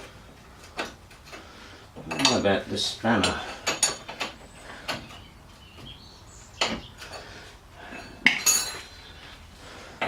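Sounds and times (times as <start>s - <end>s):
metal spanners clinking: 0.7s - 5.3s, 6.6s - 9.1s.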